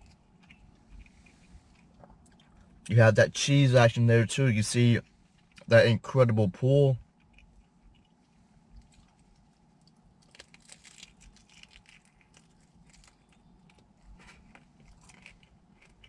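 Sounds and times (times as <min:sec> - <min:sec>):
biting and chewing pizza: 0:07.0 - 0:16.0
crisp crunches: 0:07.2 - 0:16.0.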